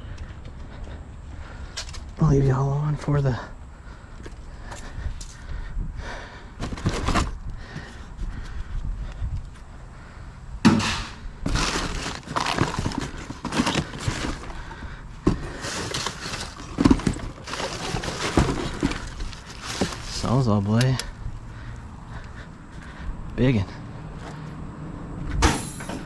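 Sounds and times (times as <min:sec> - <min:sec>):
scrap pieces knocking and scraping: 0:10.7 - 0:14.6, 0:15.2 - 0:20.3.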